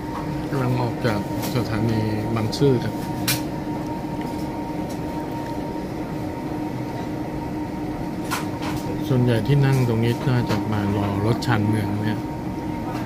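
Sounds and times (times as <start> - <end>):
faint steady hum: 0.0 - 13.0
train carriage running noise: 8.1 - 13.0.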